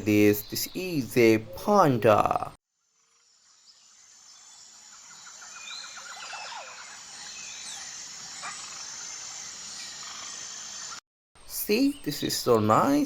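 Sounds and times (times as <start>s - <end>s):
high-pitched insect hum: 2.8s - 11.0s
bird chirps: 3.6s - 13.0s.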